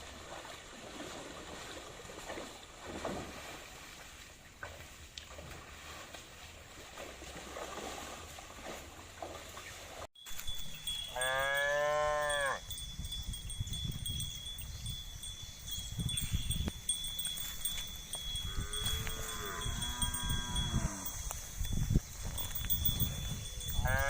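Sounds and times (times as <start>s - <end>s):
cow mooing: 11.1s - 12.6s, 18.4s - 21.2s, 23.8s - 24.0s.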